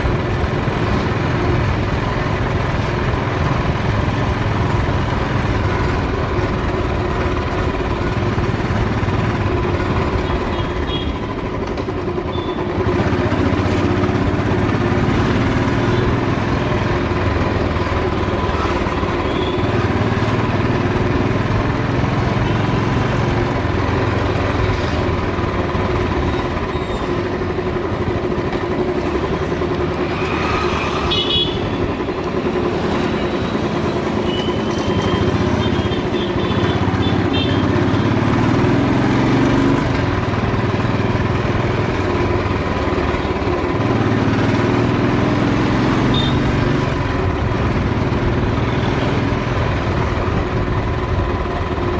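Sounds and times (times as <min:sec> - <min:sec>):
motorcycle engine running: 0:00.0 - 0:51.9
vehicle horn toots: 0:31.0 - 0:31.8, 0:34.2 - 0:37.8, 0:46.1 - 0:46.5.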